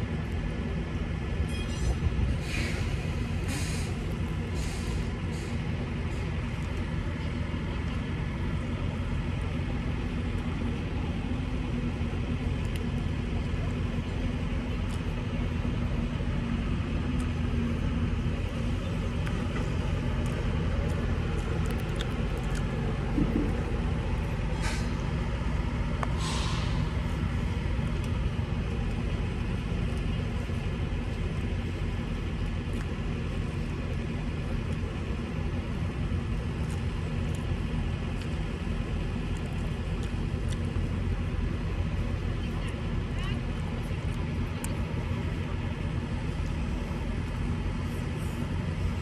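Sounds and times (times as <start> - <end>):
truck engine and road rumble: 0.0 - 49.0
short hisses: 2.4 - 4.0, 4.6 - 5.6, 24.6 - 25.0, 26.2 - 26.9.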